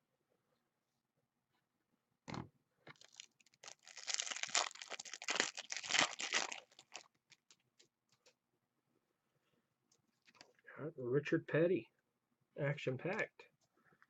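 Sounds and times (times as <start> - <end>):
foil wrapper tearing and crinkling: 3.0 - 7.6.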